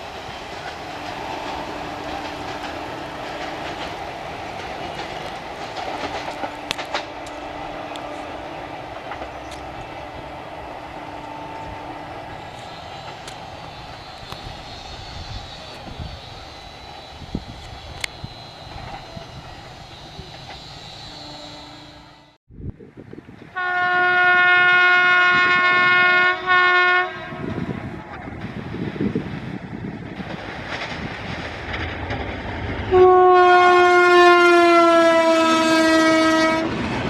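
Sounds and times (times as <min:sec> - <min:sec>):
train wheels rumbling on rail: 0:00.0 - 0:37.0
locomotive horn: 0:00.7 - 0:04.1, 0:05.0 - 0:22.4, 0:23.6 - 0:27.9, 0:32.9 - 0:36.8.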